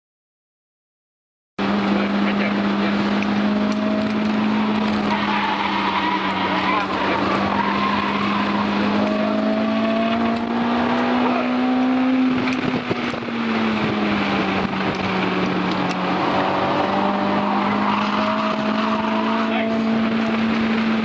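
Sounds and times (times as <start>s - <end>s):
car engine running hard: 1.6s - 21.0s
wind and road noise: 1.6s - 21.0s.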